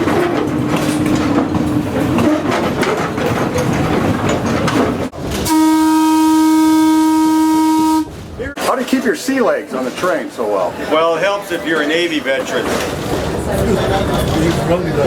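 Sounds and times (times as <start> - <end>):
railcar rumble and clatter: 0.0 - 15.0
train horn: 5.4 - 8.2.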